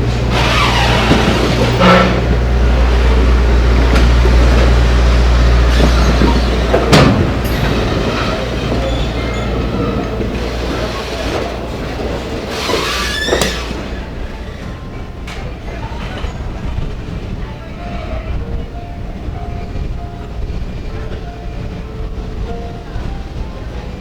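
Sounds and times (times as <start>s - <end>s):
sharp train clunk: 0.0s - 17.4s
train running on rails: 0.0s - 24.0s.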